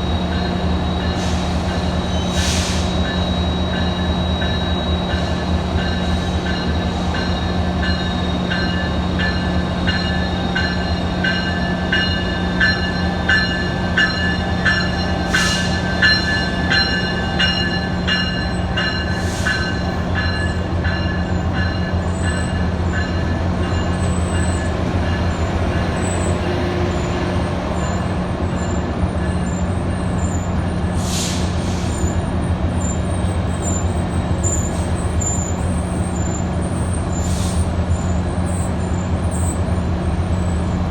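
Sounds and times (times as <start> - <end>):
locomotive bell ringing: 0.0 - 30.2
diesel locomotive idling hum: 0.0 - 33.8.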